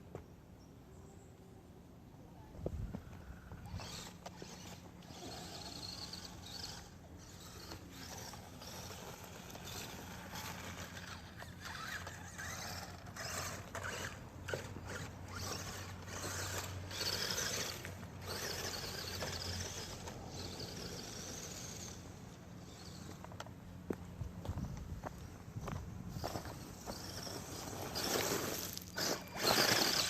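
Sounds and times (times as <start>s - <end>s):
toy car electric motor whining: 3.5s - 23.4s, 26.2s - 30.0s.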